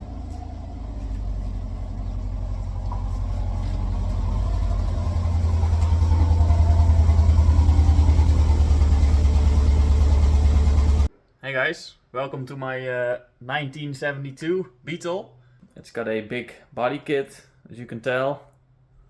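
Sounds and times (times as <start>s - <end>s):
car engine exhaust pulsing: 0.0s - 11.1s.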